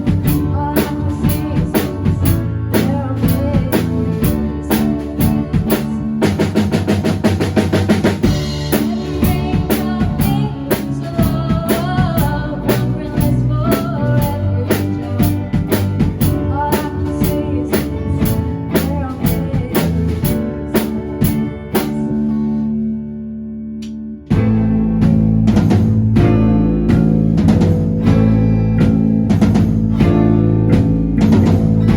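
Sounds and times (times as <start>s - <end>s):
melodic lead line: 0.0s - 22.4s
band playing: 0.0s - 22.6s, 24.3s - 31.9s
drums: 0.0s - 22.9s, 23.8s - 31.9s.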